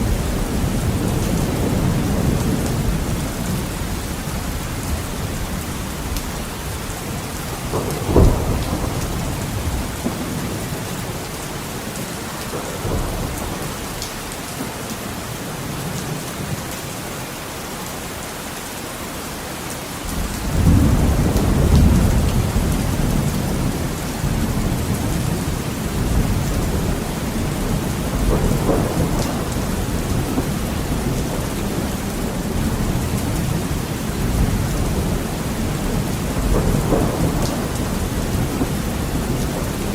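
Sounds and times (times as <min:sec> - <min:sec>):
deep rolling thunder rumble: 0:00.0 - 0:11.5, 0:12.4 - 0:14.0, 0:20.1 - 0:39.9
heavy rain hitting a window: 0:00.0 - 0:39.9
sharp thunder crack: 0:07.6 - 0:10.7, 0:36.3 - 0:39.6.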